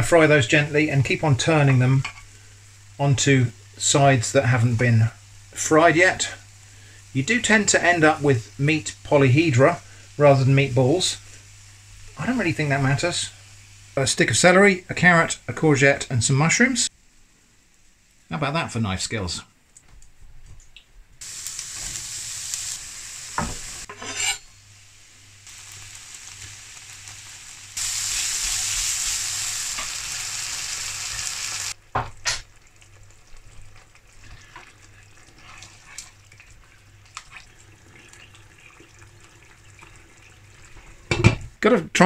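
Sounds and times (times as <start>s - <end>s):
vegetables sizzling in a frying pan: 0.0s - 18.6s, 21.2s - 38.2s
clinks and scrapes: 23.9s - 24.5s.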